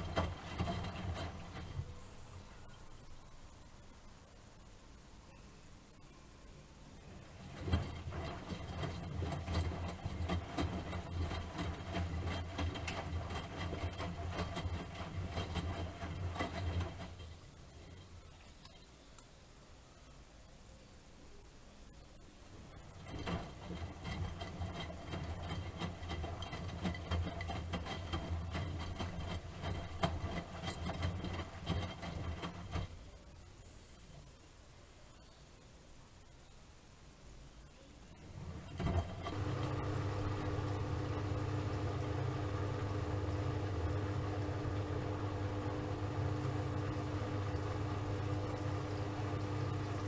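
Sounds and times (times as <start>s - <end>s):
laundry tumbling and knocking: 0.0s - 2.0s, 7.4s - 18.0s, 22.8s - 33.0s, 38.4s - 50.0s
washing machine motor hum: 0.0s - 5.0s, 5.7s - 18.8s, 19.5s - 35.0s, 36.8s - 50.0s.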